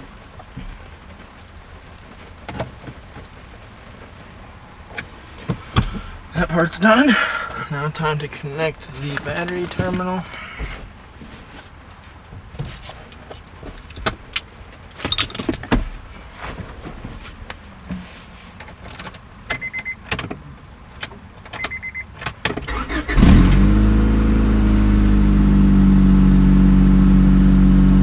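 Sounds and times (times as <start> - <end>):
car engine starting and running: 0.0 - 12.2, 18.6 - 28.0
tools and keys clicking: 15.0 - 15.7.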